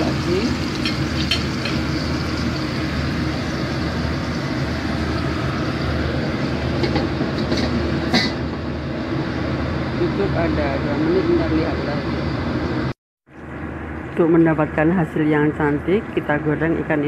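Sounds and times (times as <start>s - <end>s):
fish sizzling in a pan: 0.0s - 5.8s.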